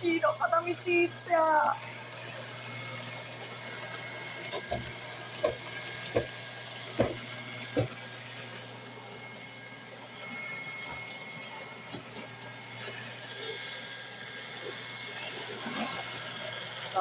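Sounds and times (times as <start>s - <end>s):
robot vacuum whirring: 0.0s - 17.0s
sharp knocks: 7.0s - 7.2s.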